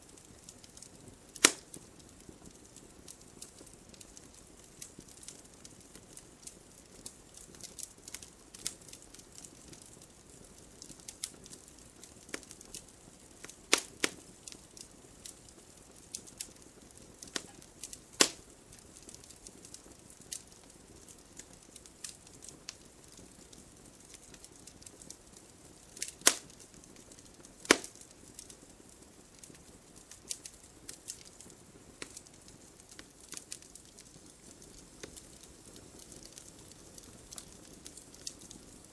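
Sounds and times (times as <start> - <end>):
faint fire hiss: 0.0 - 38.9
logs crackling in fire: 0.0 - 38.9
loud sharp fire pops: 1.4 - 1.9, 13.7 - 14.2, 17.2 - 18.5, 26.0 - 26.6, 27.6 - 28.5.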